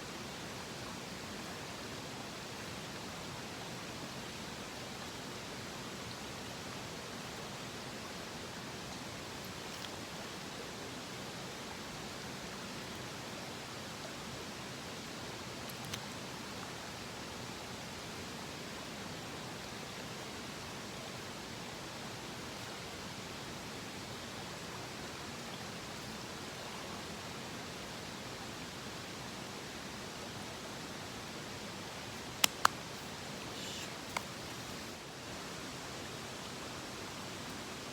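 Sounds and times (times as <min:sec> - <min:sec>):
steady water hiss: 0:00.0 - 0:37.9
faint click: 0:15.7 - 0:16.2, 0:32.3 - 0:32.9.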